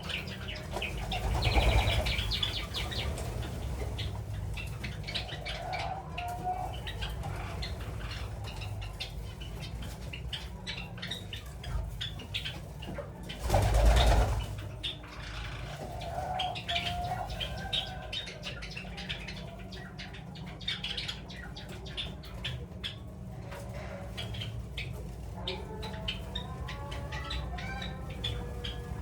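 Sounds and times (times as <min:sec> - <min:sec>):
wings flapping: 0:00.0 - 0:05.4, 0:11.8 - 0:18.1
dove cooing: 0:00.0 - 0:29.0
small birds chirping: 0:00.0 - 0:29.0.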